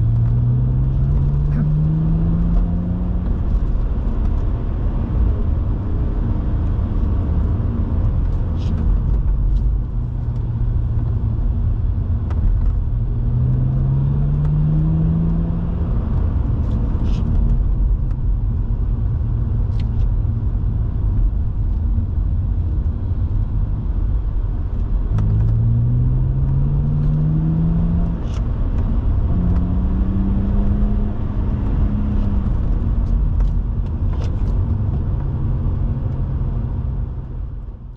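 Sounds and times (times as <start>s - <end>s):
car engine revving: 0.0s - 4.5s, 13.0s - 17.5s, 24.8s - 37.2s
road and tyre rumble: 0.0s - 37.9s.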